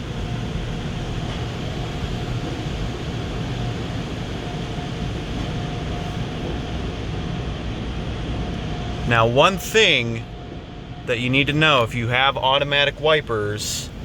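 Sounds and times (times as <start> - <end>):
car engine idling: 0.0 - 14.0
faint steady whine: 0.0 - 14.0.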